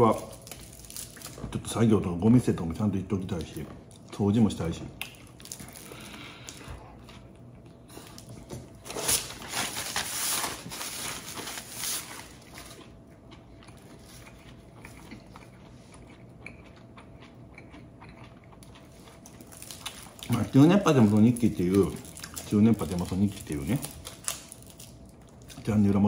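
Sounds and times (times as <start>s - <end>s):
chewing crusty bread: 0.0s - 9.4s, 10.9s - 26.0s
paper tissue rustling: 8.8s - 12.7s.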